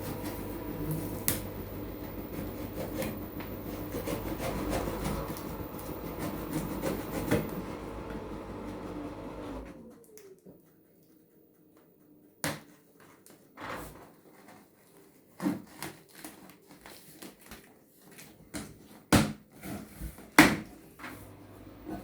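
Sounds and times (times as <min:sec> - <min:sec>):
knocks and clatters of unpacking: 0:12.5 - 0:21.0.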